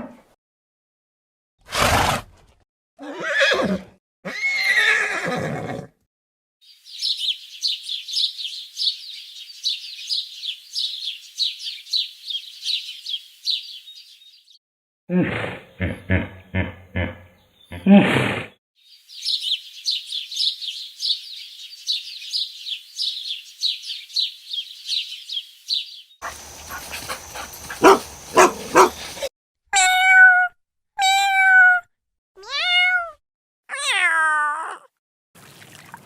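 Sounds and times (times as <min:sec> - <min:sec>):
harsh noisy animal sound: 0:26.2 - 0:29.3
cat meowing: 0:29.8 - 0:34.9.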